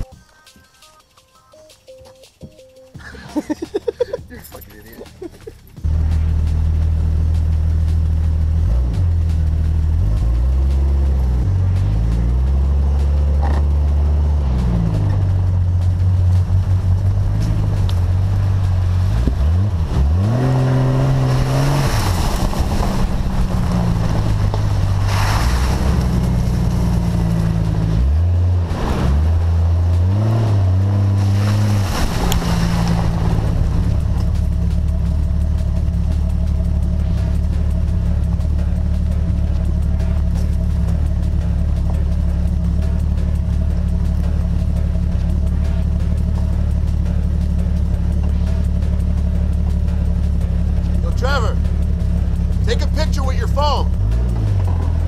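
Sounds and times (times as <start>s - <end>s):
off-road engine revving: 3.1s - 55.0s
bursts of rushing noise: 30.4s - 34.1s.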